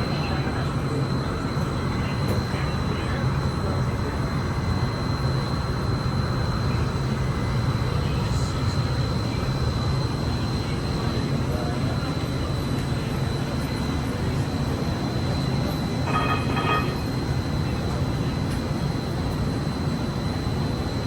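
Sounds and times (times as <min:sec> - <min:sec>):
light rail car rumble: 0:00.0 - 0:19.7
high whine: 0:13.6 - 0:17.6.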